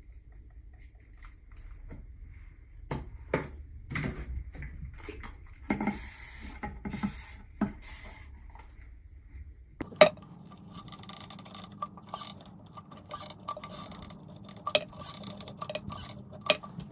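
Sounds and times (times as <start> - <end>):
hiss: 5.9 - 8.3
steady low hum: 9.0 - 16.9
objects being handled: 9.8 - 16.9.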